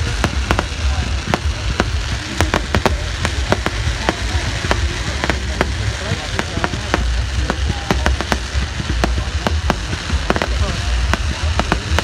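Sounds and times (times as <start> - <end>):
fireworks cracking and popping: 0.0 - 12.0
low rumble: 0.0 - 12.0.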